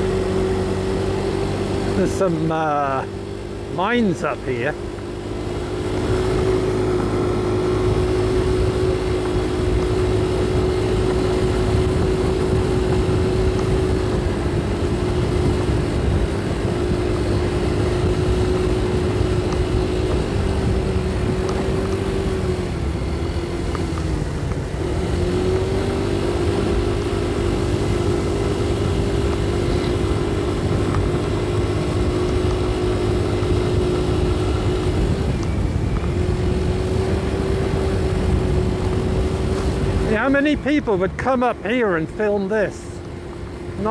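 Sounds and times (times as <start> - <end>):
motorcycle engine running: 0.0 - 43.9
road rumble: 0.0 - 43.9
wind: 0.0 - 43.9.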